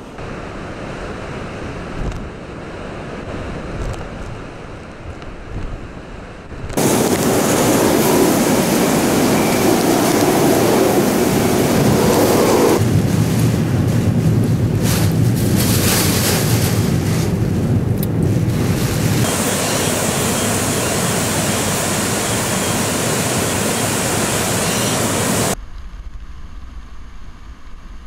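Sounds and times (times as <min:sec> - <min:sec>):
wind buffeting microphone: 0:00.4 - 0:24.3
driving rain: 0:06.8 - 0:25.6.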